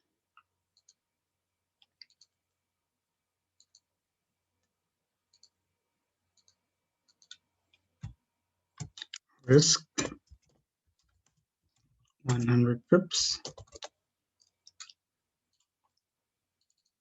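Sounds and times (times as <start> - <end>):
faint computer mouse clicks: 3.6 - 3.9, 5.3 - 5.6, 6.4 - 8.2.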